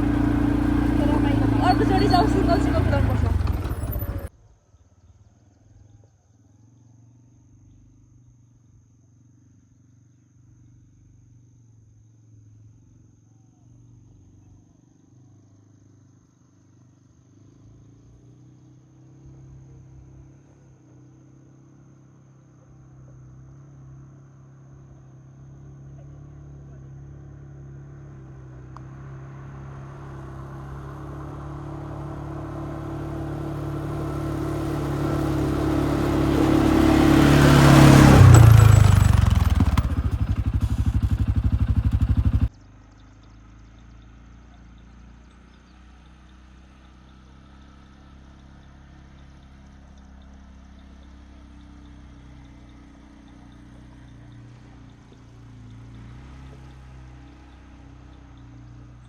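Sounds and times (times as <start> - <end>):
quad bike engine passing by: 0.0 - 8.2, 13.6 - 59.0.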